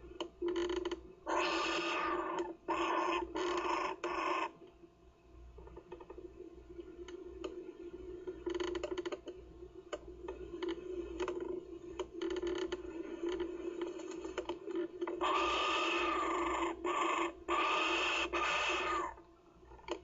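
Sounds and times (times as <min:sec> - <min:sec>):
clicks and creaks: 0:00.2 - 0:01.1, 0:03.3 - 0:04.8, 0:05.6 - 0:06.3, 0:08.2 - 0:15.2, 0:19.2 - 0:20.0.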